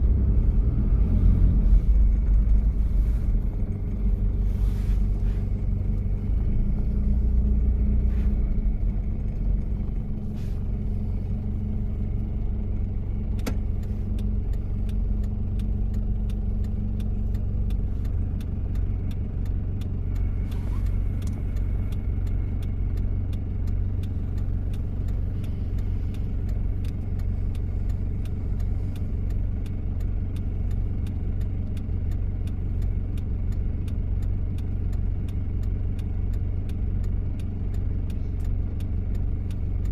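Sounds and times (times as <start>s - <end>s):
diesel engine rumbling: 0.0s - 39.9s
faint regular ticking: 11.1s - 39.9s.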